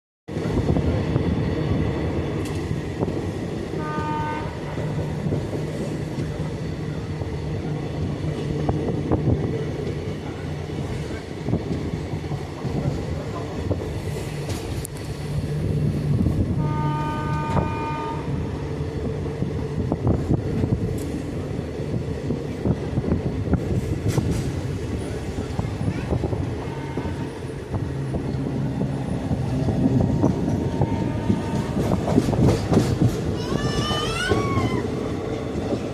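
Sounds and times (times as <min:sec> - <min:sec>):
train rumble and wheel clatter: 0:00.3 - 0:35.9
train horn: 0:03.8 - 0:04.8, 0:16.5 - 0:18.6, 0:26.4 - 0:27.5, 0:30.5 - 0:32.2.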